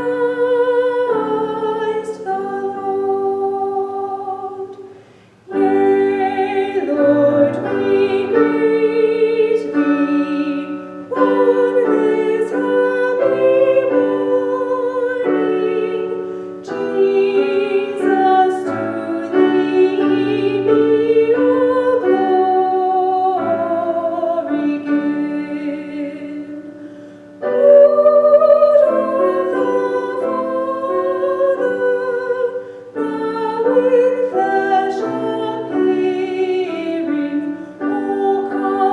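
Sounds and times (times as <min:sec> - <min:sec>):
person singing with vibrato: 0:00.0 - 0:38.9
piano accompaniment: 0:00.0 - 0:38.9
singer breathing: 0:04.9 - 0:05.5, 0:16.2 - 0:16.6, 0:26.7 - 0:27.4.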